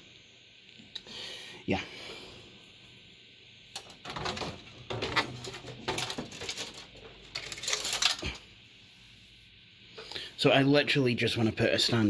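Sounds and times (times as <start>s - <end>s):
computer parts scraping and rustling: 3.8s - 8.5s.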